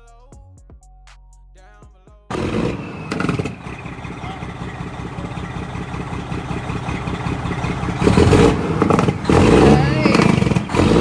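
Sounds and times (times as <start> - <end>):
music: 0.0 - 2.3
truck diesel engine running: 2.3 - 11.0.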